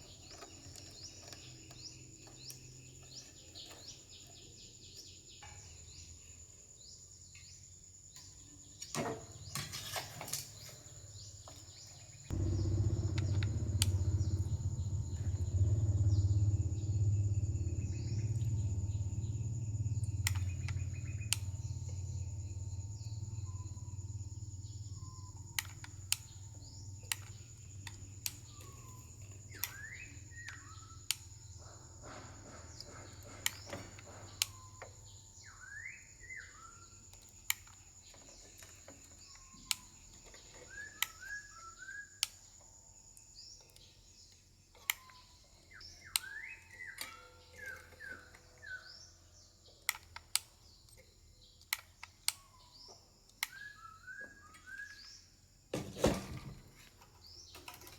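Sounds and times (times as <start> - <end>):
birds chirping: 0.0 - 55.4
sharp clicks: 12.3 - 18.9, 19.9 - 22.0, 25.4 - 31.5, 49.8 - 52.5, 53.3 - 53.6.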